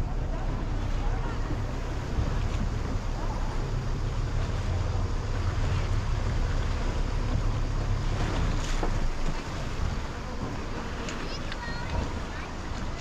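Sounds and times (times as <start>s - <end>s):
motorboat engine rumble: 0.0s - 13.0s
water washing past hull: 0.0s - 13.0s
wind buffeting microphone: 0.0s - 13.0s.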